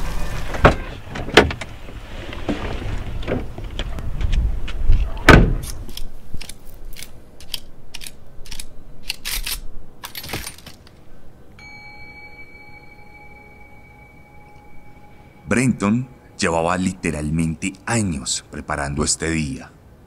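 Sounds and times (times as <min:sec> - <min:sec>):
steady high tone: 0:11.6 - 0:18.6.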